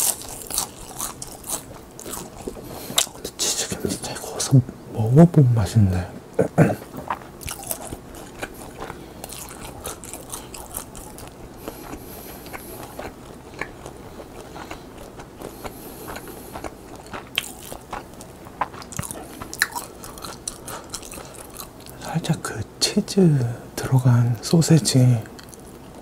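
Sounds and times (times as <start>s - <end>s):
person chewing crunchy seaweed: 0.0s - 3.7s, 6.7s - 22.1s.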